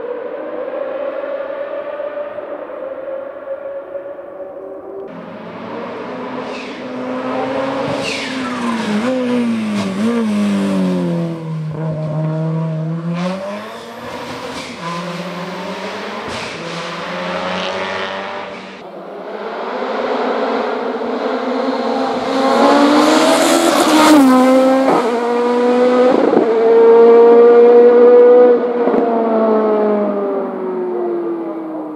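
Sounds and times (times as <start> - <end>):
race car engine revving: 5.1 - 30.4.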